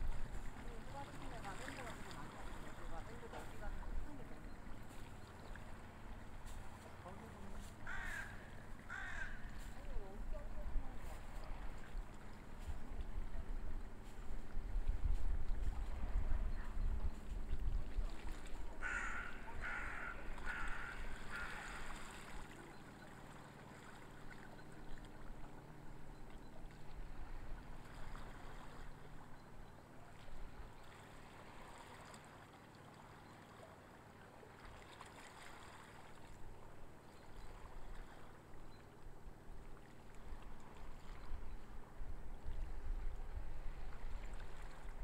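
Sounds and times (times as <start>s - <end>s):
bird calling: 7.4s - 10.2s, 18.8s - 22.8s.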